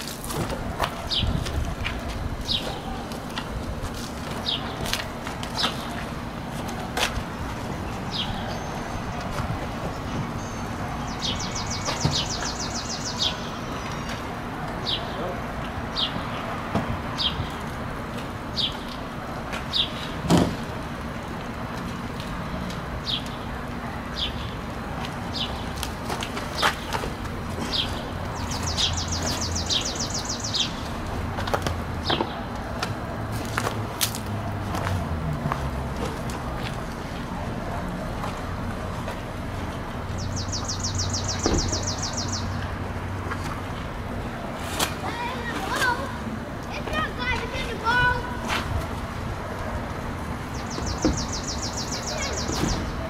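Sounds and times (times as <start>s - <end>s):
bird chirping: 9.9s - 14.2s, 27.6s - 30.9s, 40.1s - 42.6s, 50.4s - 53.0s.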